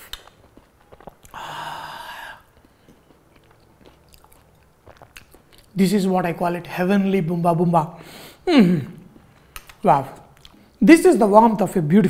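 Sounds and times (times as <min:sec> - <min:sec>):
wet mouth clicks: 0:00.0 - 0:01.4, 0:09.0 - 0:09.8
man chewing: 0:00.0 - 0:05.8, 0:09.0 - 0:10.8.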